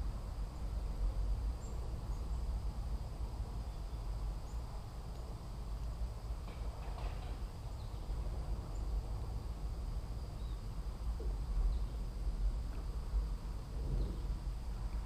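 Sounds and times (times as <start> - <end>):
low rumble: 10.8 - 15.0.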